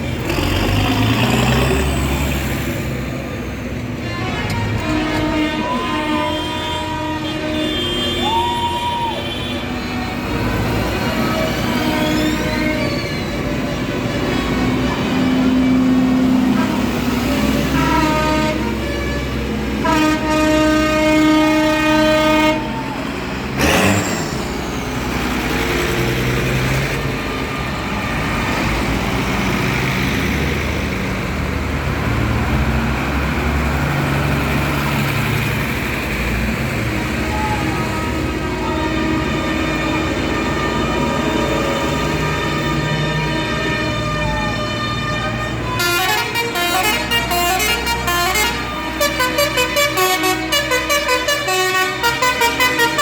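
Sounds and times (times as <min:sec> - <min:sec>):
tractor engines running: 0:00.0 - 0:53.0
tractor horn blasts: 0:04.0 - 0:10.0, 0:16.5 - 0:22.7, 0:37.3 - 0:53.0.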